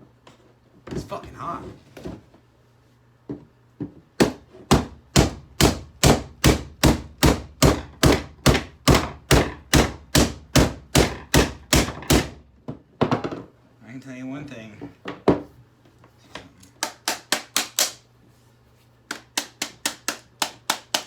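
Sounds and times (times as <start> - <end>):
hard knocks: 4.2 - 13.5.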